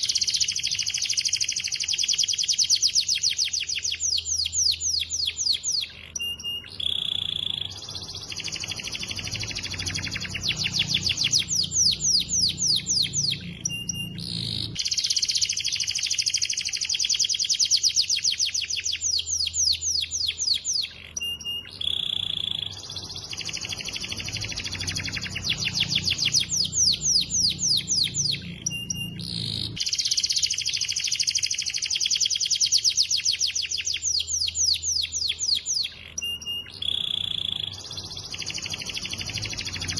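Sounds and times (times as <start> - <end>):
canary singing trills: 0.0 - 39.9
low hum: 8.2 - 14.8.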